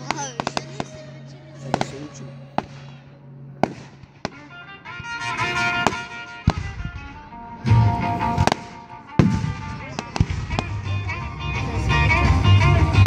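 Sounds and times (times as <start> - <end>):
fireworks bangs: 0.0 - 1.0, 3.6 - 10.9
music with held notes: 0.0 - 13.0
deep boom: 7.7 - 10.9.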